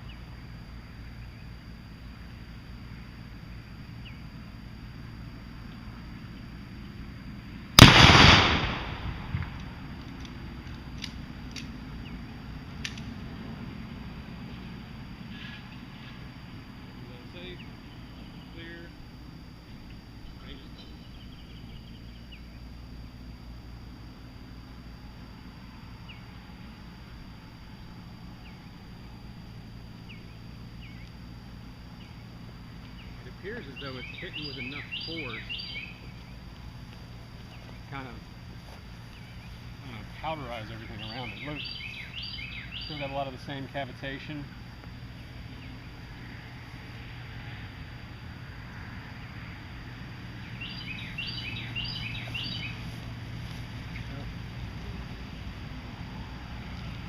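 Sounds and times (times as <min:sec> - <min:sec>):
low outdoor rumble: 0:00.0 - 0:57.0
gunshot crack: 0:07.8 - 0:09.6
small bird chirping: 0:20.2 - 0:22.7, 0:30.0 - 0:31.2, 0:31.9 - 0:36.7, 0:40.7 - 0:43.3, 0:50.3 - 0:54.3.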